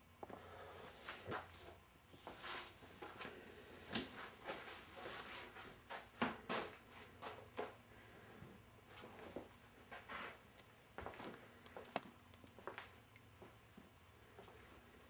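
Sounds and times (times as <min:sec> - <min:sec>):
faint footsteps walking: 0:00.2 - 0:07.8, 0:08.9 - 0:15.0.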